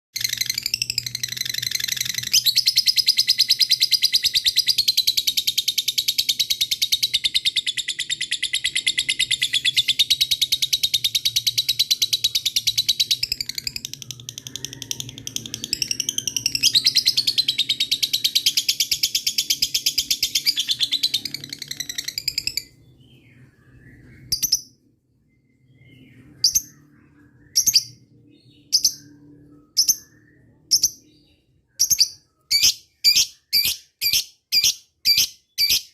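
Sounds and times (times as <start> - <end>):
bird sharp chirps: 0.2 - 35.9
lovebird chattering trill: 31.8 - 35.9.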